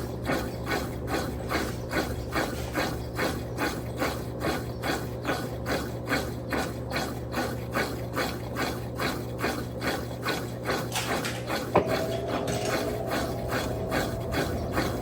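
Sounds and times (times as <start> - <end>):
motor hum: 0.0 - 15.0
washing machine churning: 0.0 - 15.0
steady tone: 11.8 - 15.0.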